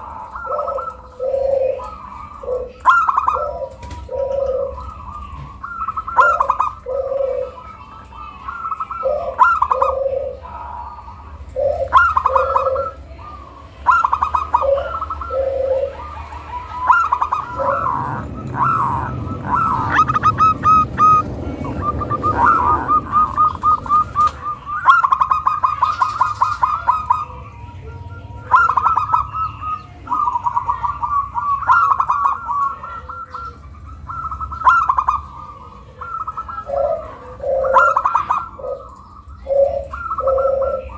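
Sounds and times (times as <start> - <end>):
dove cooing song: 0.0 - 40.9
low rushing noise: 16.0 - 24.7.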